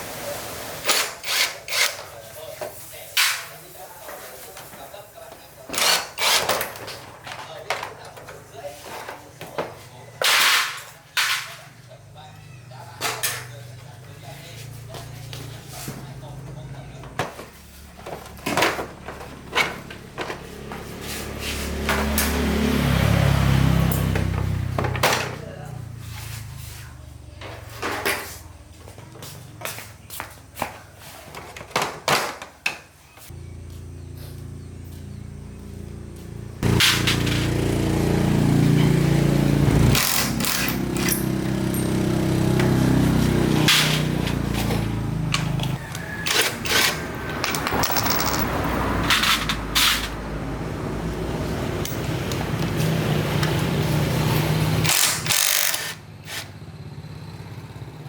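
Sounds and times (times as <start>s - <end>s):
metal parts knocking and clattering: 40.0s - 42.0s, 46.2s - 49.6s.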